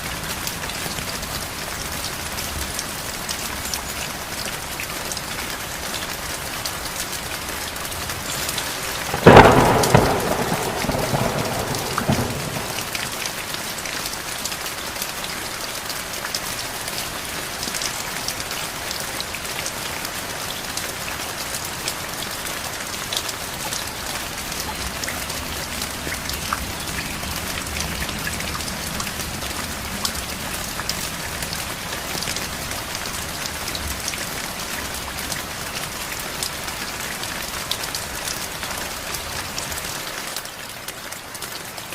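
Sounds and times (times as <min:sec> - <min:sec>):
heavy rain pattering: 0:00.0 - 0:41.9
thunderclap rumbling: 0:08.6 - 0:13.4.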